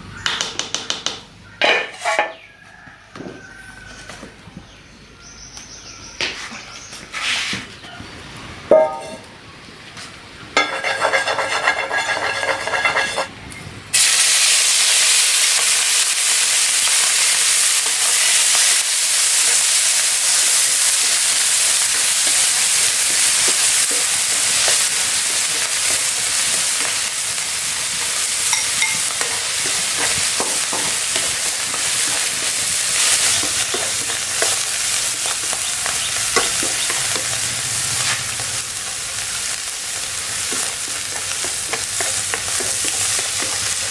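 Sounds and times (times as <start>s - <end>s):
food sizzling in hot oil: 10.6s - 13.3s, 13.9s - 43.9s.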